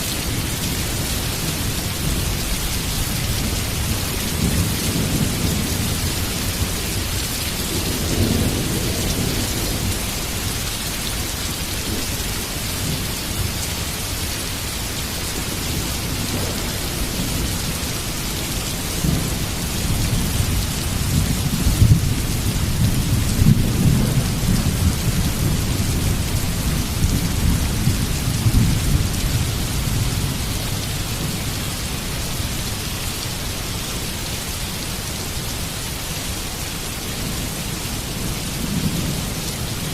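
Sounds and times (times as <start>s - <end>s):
heavy rain falling: 0.0s - 39.9s
rolling thunder: 3.0s - 10.7s, 15.4s - 31.4s.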